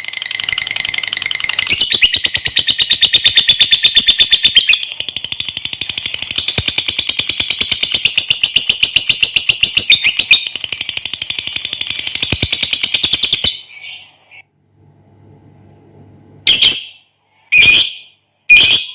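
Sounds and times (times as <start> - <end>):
bird rapid high chatter: 0.1 - 14.2.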